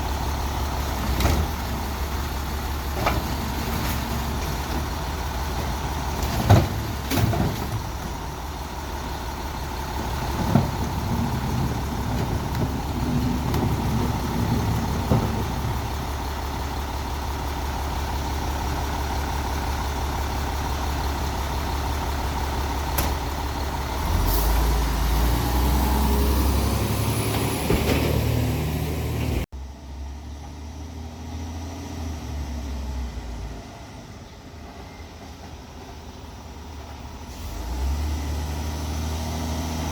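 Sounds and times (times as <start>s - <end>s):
garbage truck diesel engine: 0.0s - 39.9s
loader arm clunks: 0.8s - 17.1s, 22.8s - 23.8s, 27.1s - 29.4s.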